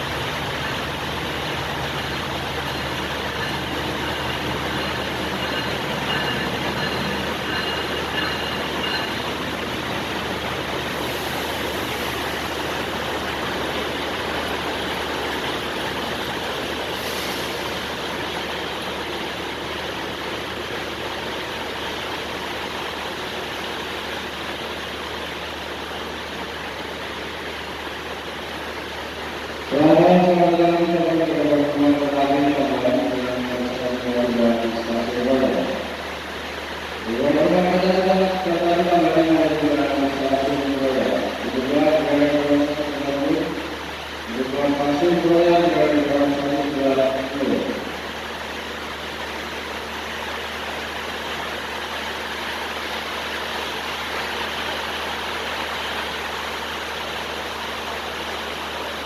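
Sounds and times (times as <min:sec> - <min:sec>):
faint high ringing tones: 0:00.0 - 0:11.4
train wheels on rails: 0:00.0 - 0:59.0.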